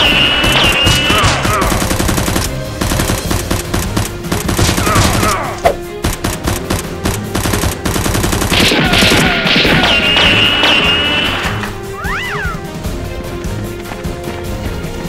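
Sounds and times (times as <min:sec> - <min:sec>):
loud gunshot: 0:00.0 - 0:02.2, 0:04.4 - 0:05.8, 0:08.4 - 0:11.7
automatic gunfire bursts: 0:00.0 - 0:11.7
action background music: 0:00.0 - 0:15.0.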